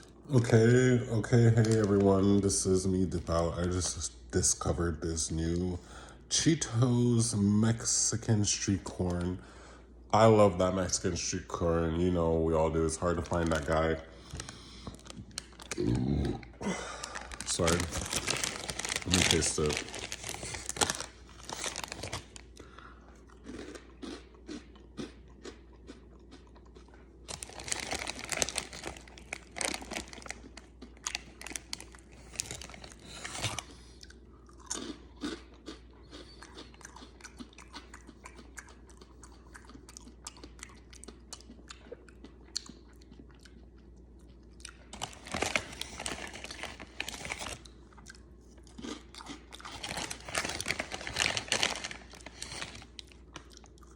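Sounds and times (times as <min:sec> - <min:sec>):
person crunching snacks: 0:12.6 - 0:43.6, 0:44.6 - 0:53.9.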